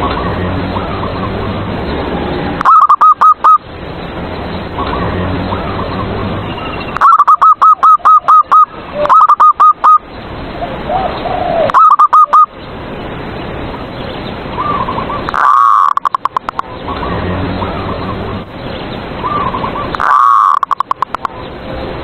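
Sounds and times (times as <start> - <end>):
dove staccato cooing: 2.5 - 3.6, 7.0 - 10.0, 10.9 - 12.5, 14.6 - 18.4, 19.2 - 21.3.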